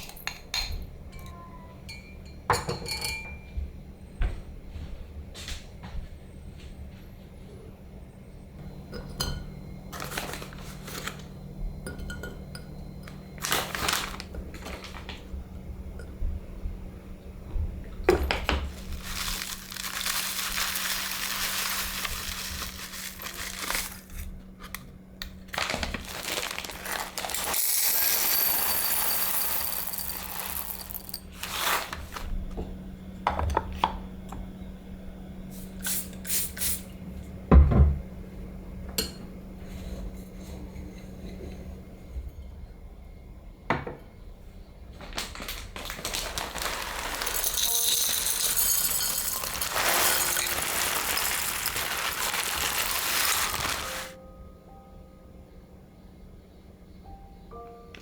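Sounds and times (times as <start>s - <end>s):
dishes and cutlery clinking: 0.0s - 3.6s, 46.6s - 52.2s.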